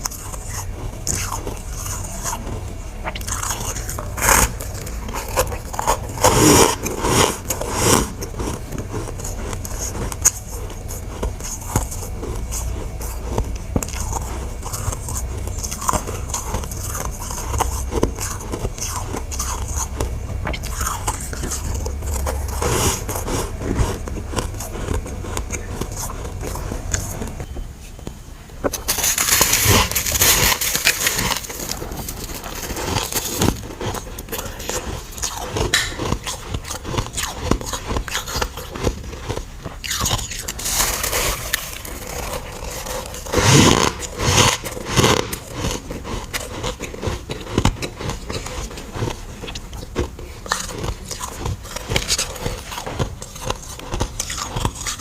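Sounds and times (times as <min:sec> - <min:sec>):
crunching frost chunks: 0:28.6 - 0:55.0.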